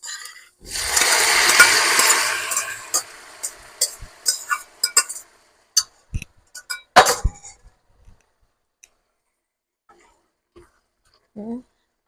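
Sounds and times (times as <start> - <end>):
utensil scraping a pan: 0.0 - 5.4
frying sizzle: 0.1 - 6.1.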